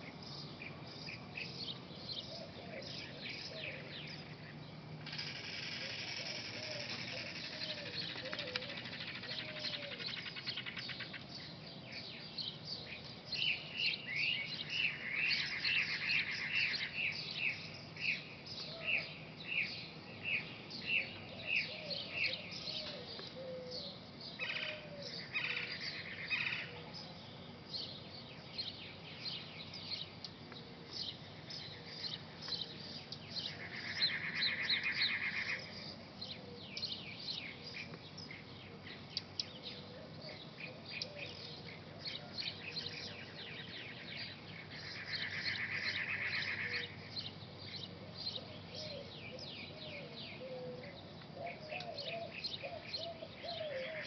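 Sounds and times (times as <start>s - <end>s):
low warbling bird calls: 0.0s - 11.6s, 29.1s - 54.0s
birds chirping: 0.0s - 54.0s.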